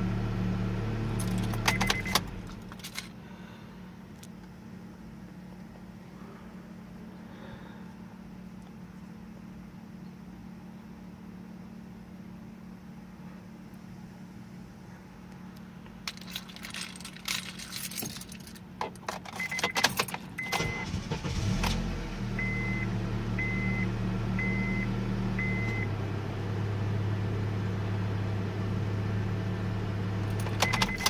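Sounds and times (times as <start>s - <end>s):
car engine starting and idling: 0.0s - 6.0s, 15.5s - 31.0s
car keys jangling: 1.2s - 3.1s, 16.0s - 21.1s, 30.3s - 31.0s.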